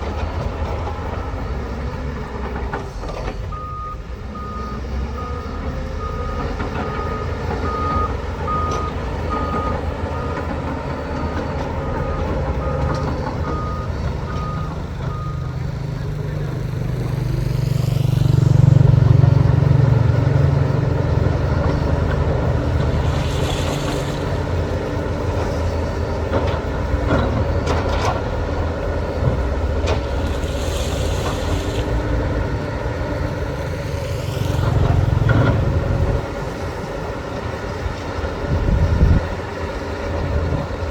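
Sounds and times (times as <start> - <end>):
reversing alarm beeping: 0.0 - 16.6
diesel machinery running: 0.0 - 40.9.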